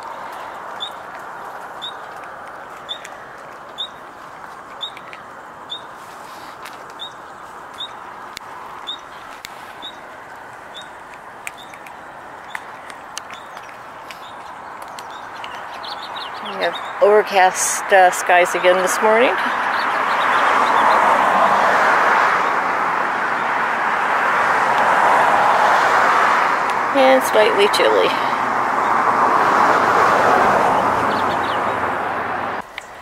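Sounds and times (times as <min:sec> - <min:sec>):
small bird chirping: 0:01.8 - 0:02.1, 0:02.8 - 0:03.2, 0:03.8 - 0:04.0, 0:04.8 - 0:05.9, 0:06.9 - 0:10.1, 0:10.7 - 0:17.0, 0:19.5 - 0:20.9.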